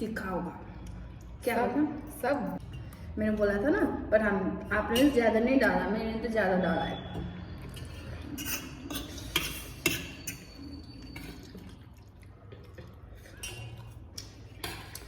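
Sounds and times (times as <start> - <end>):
cutlery clinking against a dish: 8.4 - 10.6.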